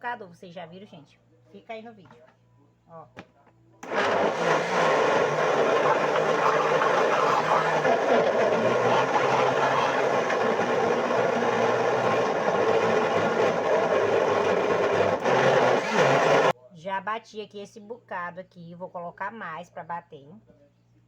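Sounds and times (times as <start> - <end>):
electric blender running: 3.8 - 16.5.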